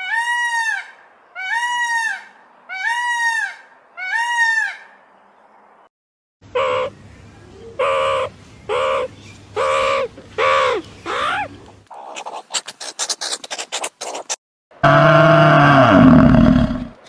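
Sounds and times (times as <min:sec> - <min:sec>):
bird giving harsh calls: 0:06.5 - 0:14.4.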